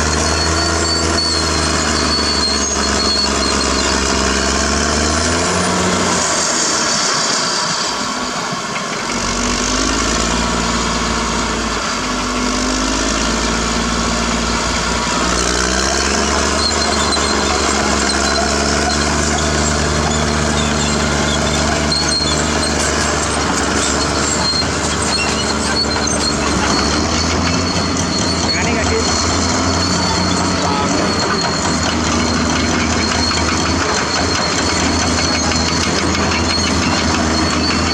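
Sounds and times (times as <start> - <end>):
thin high squeal: 0.0 - 4.5, 15.4 - 37.9
bulldozer diesel engine: 0.0 - 37.9.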